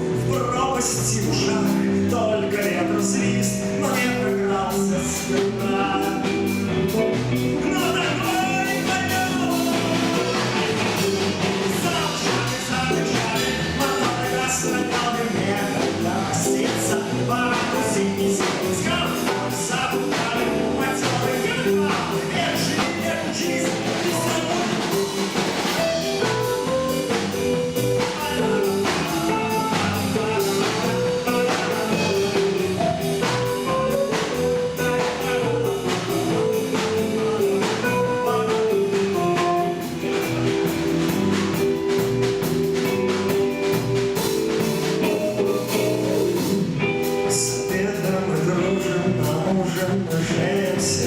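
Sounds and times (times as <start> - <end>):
drum kit beat: 0.0 - 51.0
guitar: 0.0 - 51.0.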